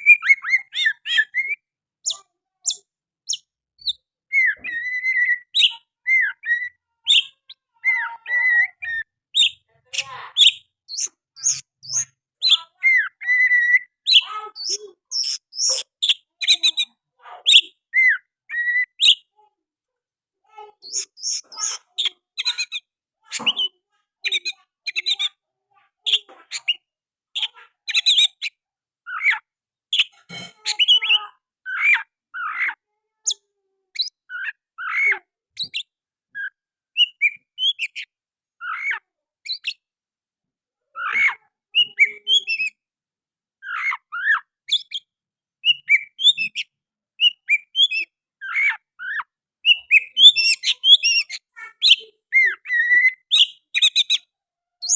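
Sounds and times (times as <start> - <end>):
bird singing whistles and chirps: 3.3 - 7.3.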